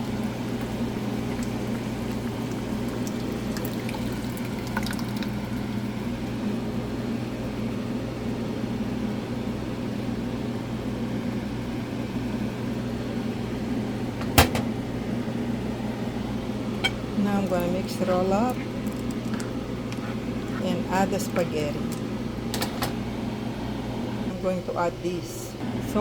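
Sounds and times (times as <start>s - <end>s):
sauce pouring into a pan: 0.4s - 5.6s
steady hum: 12.5s - 26.0s.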